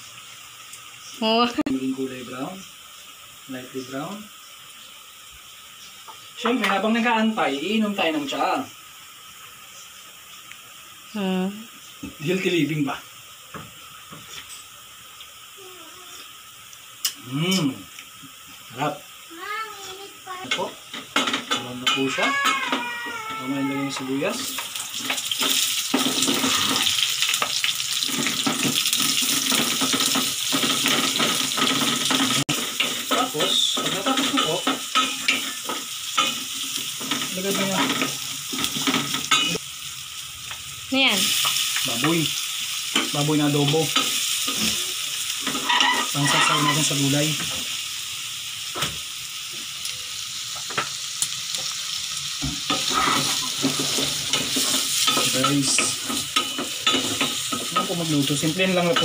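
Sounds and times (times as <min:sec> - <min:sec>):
onions sizzling in hot oil: 0:00.0 - 0:59.0
wooden spatula scraping pan: 0:45.5 - 0:46.9.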